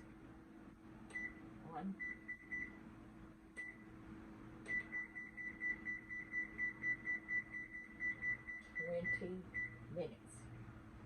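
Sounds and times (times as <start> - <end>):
low steady hum: 0.0 - 11.0
kitchen timer beeps: 2.0 - 2.8, 4.7 - 9.8.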